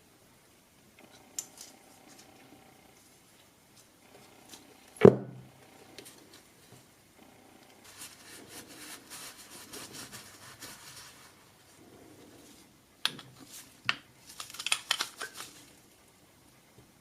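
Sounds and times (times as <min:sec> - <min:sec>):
scraping and rubbing of tool parts: 0:07.8 - 0:15.9.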